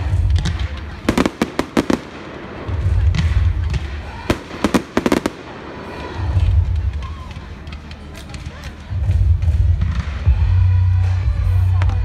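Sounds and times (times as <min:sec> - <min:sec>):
fireworks bangs: 0:00.0 - 0:08.6.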